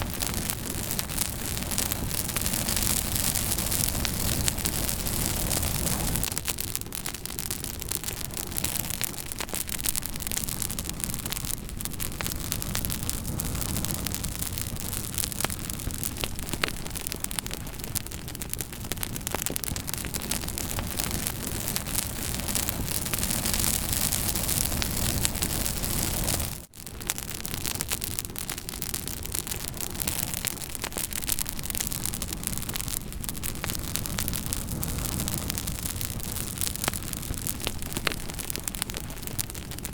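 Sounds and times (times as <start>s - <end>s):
campfire crackling: 0.0s - 39.9s
sharp pops of fire: 0.0s - 39.9s.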